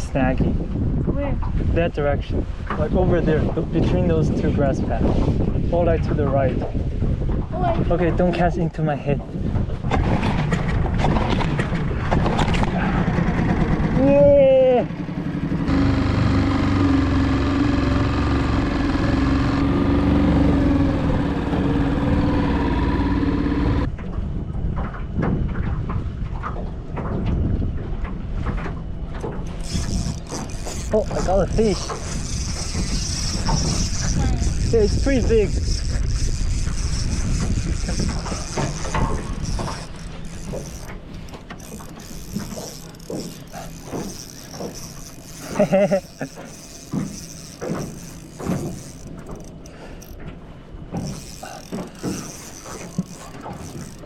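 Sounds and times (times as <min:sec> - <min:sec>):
outboard motor droning: 0:02.3 - 0:54.0
fishing reel ratcheting: 0:29.4 - 0:50.3, 0:50.9 - 0:54.0.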